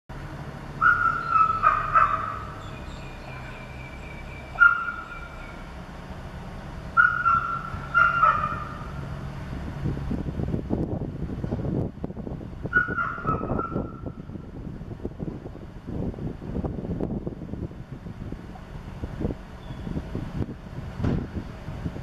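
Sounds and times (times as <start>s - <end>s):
bird calling: 0.8s - 5.7s, 7.0s - 8.9s.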